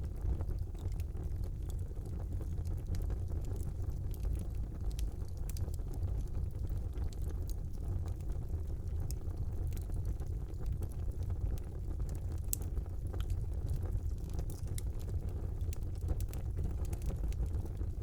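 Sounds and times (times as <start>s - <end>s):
fire crackling and popping: 0.0s - 18.0s
fire flames rumbling: 0.0s - 18.0s.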